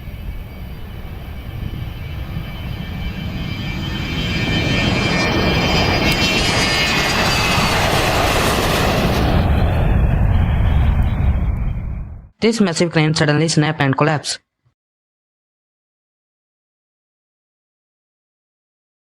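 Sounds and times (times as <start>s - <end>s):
plane engine roaring: 0.0s - 12.3s.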